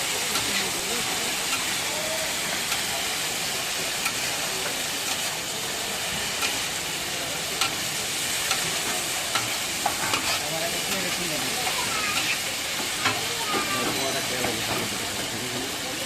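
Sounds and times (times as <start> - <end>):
food sizzling in oil: 0.0 - 16.0
utensil clicking against pan: 6.4 - 6.7, 8.4 - 13.7.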